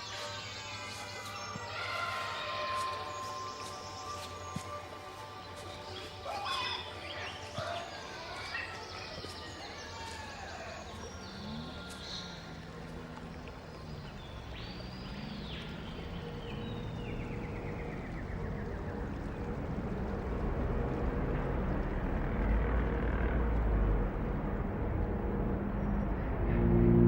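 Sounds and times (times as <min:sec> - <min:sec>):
deep sustained musical tones: 0:10.8 - 0:27.0
steady rushing noise: 0:16.2 - 0:27.0.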